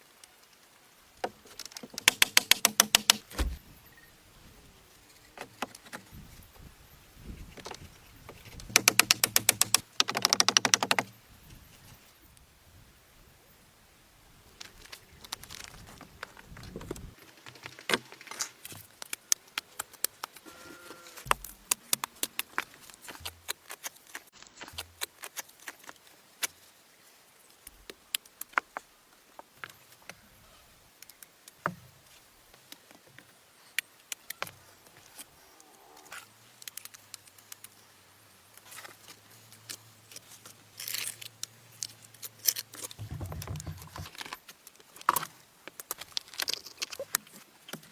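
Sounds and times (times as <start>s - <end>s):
sharp clicks and light taps: 1.5s - 3.6s, 7.5s - 11.1s.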